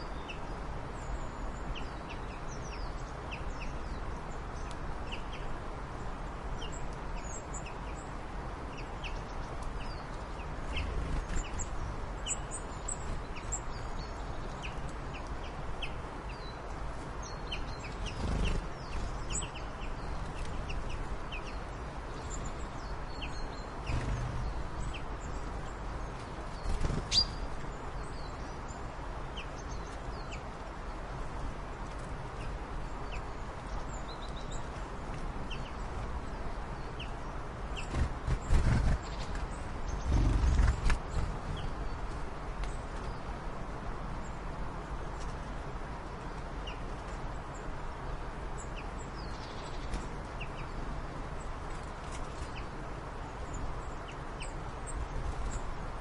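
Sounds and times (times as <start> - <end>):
birds chirping: 0.0 - 30.5, 35.4 - 43.4.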